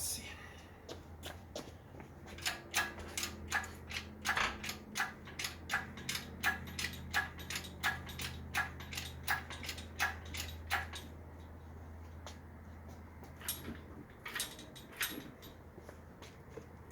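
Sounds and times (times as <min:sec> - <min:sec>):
ratchet clicking: 0:02.4 - 0:11.1.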